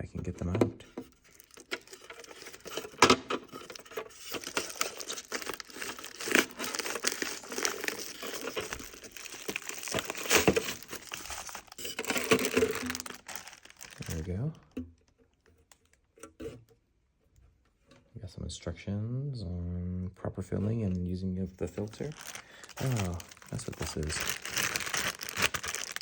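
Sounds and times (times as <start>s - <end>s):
packaging crinkling and rustling: 0.3s - 14.5s, 21.5s - 26.0s.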